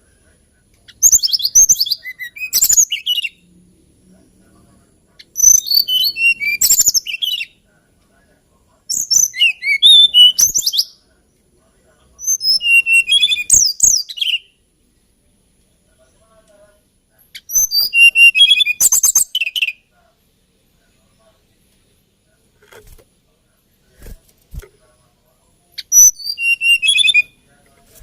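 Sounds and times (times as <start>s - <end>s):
flycatcher singing: 0.9s - 3.4s, 5.2s - 7.6s, 8.9s - 11.0s, 12.2s - 14.6s, 17.3s - 19.8s, 25.8s - 27.4s.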